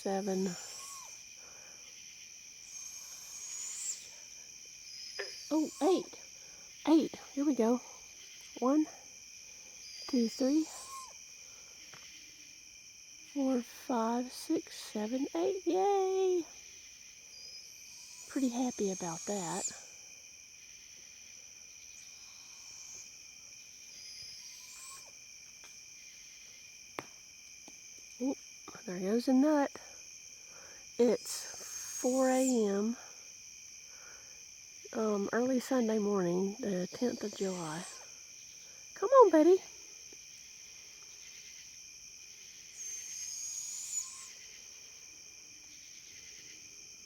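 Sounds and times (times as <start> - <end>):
owls squeaking: 0.0 - 1.2, 2.7 - 4.1, 5.1 - 6.1, 9.9 - 11.1, 17.4 - 19.8, 24.0 - 25.1, 31.0 - 32.8, 37.1 - 38.0, 42.8 - 44.4
crickets chirping: 0.0 - 47.0
night insects chorus: 0.0 - 47.0.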